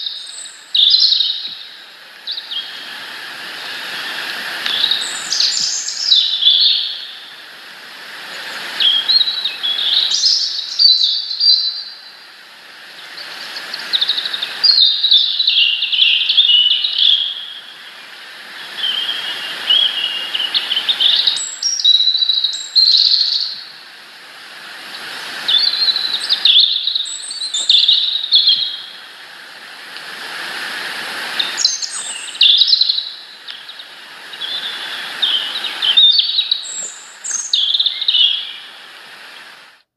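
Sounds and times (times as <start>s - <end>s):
songbird warbling: 4.0s - 7.3s, 8.2s - 12.1s, 18.7s - 23.7s, 24.9s - 29.0s, 31.3s - 38.7s.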